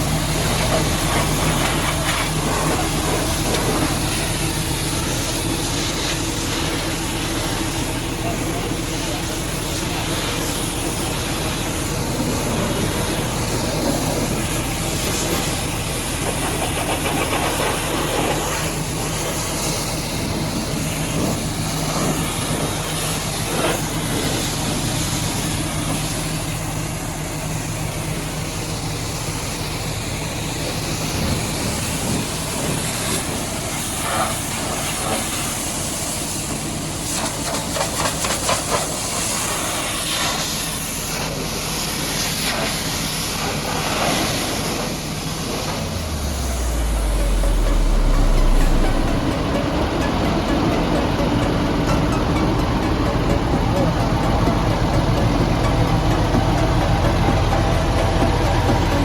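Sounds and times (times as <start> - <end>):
pressure washer jet hissing: 0.0 - 50.3
steady low hum: 45.0 - 59.0.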